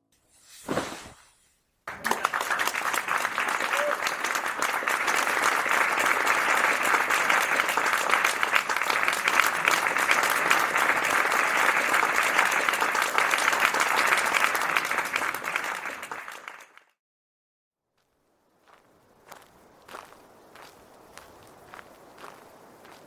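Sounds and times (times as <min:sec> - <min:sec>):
audience applauding: 0:01.9 - 0:17.0.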